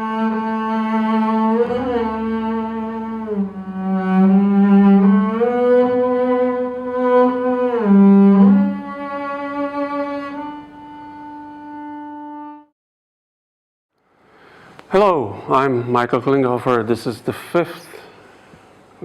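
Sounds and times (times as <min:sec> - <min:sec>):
bowed double bass: 0:00.0 - 0:12.7.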